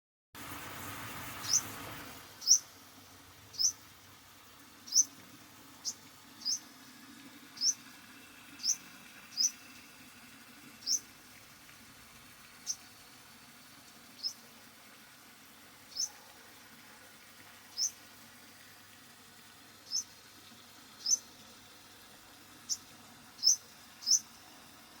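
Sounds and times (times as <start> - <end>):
soft background hiss: 0.6 - 25.0
bird chirping: 1.4 - 1.7, 2.4 - 2.7, 3.5 - 3.8, 4.9 - 5.2, 5.8 - 6.7, 7.6 - 7.8, 8.6 - 9.6, 10.8 - 11.0, 12.6 - 12.8, 14.2 - 14.4, 15.9 - 16.2, 17.7 - 18.0, 19.8 - 20.1, 21.0 - 21.2, 23.4 - 24.3.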